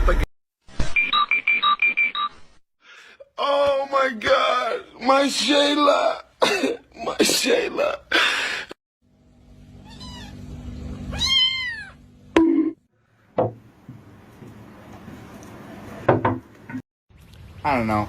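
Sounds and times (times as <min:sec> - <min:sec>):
cat meowing: 0:09.8 - 0:10.4, 0:11.1 - 0:12.0
sharp knocks: 0:13.4 - 0:13.7.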